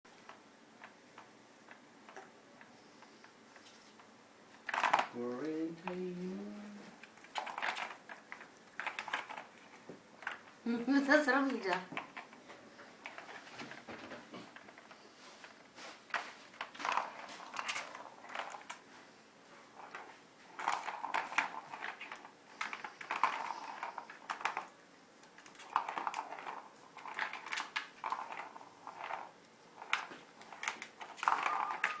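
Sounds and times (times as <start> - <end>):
cat toy rattling and jingling: 30.5 - 32.0.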